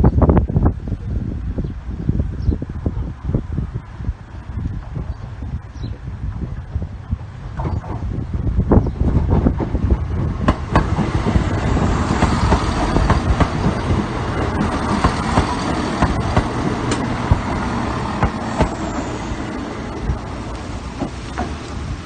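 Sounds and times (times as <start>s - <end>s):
diesel train passing: 1.5s - 22.0s
train wheels clicking over rail joints: 6.2s - 22.0s.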